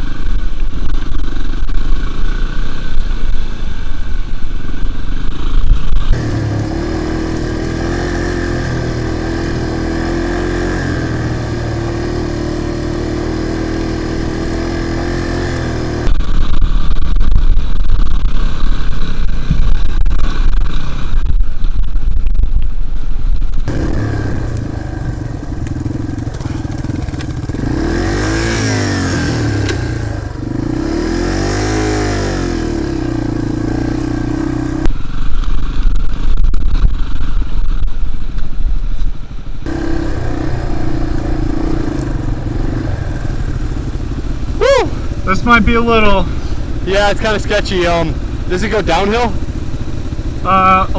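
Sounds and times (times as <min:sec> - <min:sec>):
dirt bike engines running: 0:06.1 - 0:16.2, 0:23.7 - 0:34.9, 0:39.7 - 0:50.9.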